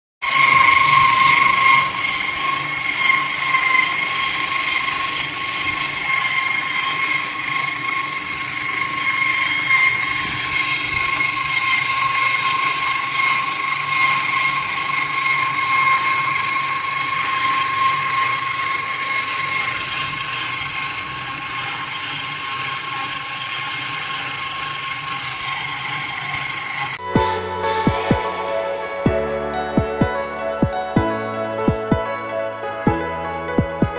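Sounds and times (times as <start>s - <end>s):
wire saw cutting concrete: 0.2s - 27.2s.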